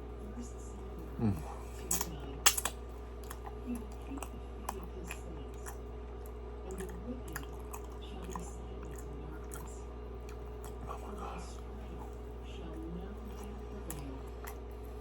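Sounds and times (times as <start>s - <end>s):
person chewing doughnut: 1.0s - 15.0s.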